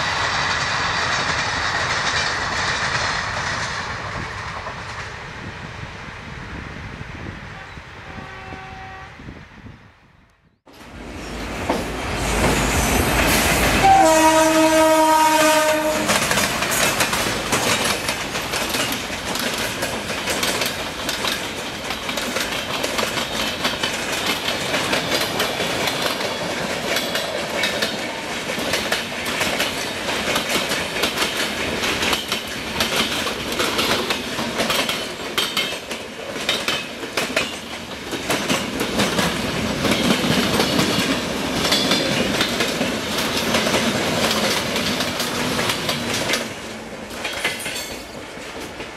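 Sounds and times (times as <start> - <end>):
train passing at speed: 0.0 - 48.9
locomotive horn: 7.6 - 9.3, 13.6 - 16.3
wheel clatter over rail joints: 16.0 - 48.8.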